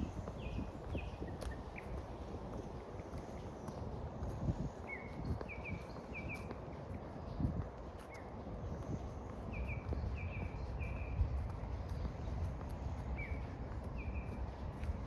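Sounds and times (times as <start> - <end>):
steady low rumble: 0.0 - 15.0
small bird chirping: 4.8 - 6.6, 9.5 - 12.4.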